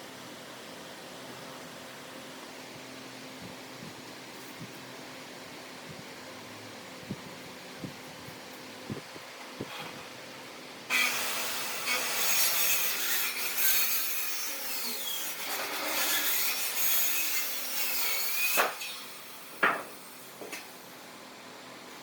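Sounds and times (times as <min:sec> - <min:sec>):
knocks on wood: 0:19.6 - 0:19.9.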